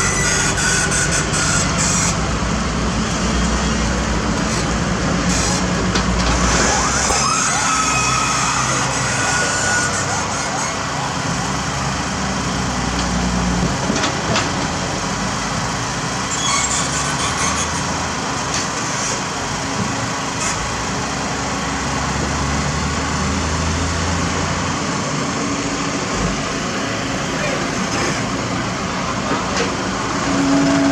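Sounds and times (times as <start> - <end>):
heavy diesel engines running: 0.0 - 30.9.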